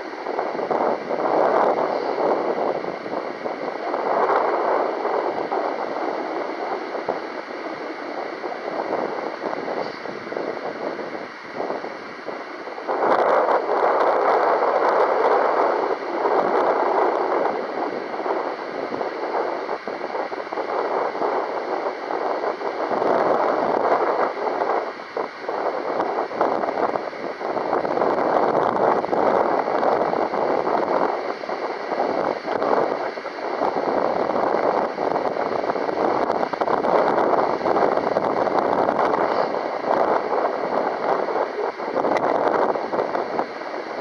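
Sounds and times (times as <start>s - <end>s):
gusty wind buffeting microphone: 0.0s - 44.0s.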